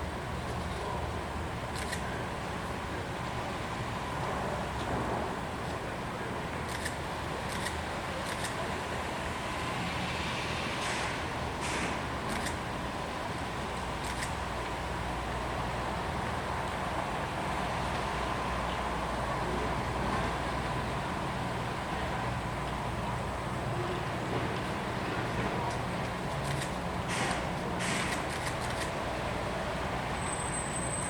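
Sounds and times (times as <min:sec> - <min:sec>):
low rumble of harbour noise: 0:00.0 - 0:31.0
brief hisses: 0:10.6 - 0:12.1, 0:27.1 - 0:28.3.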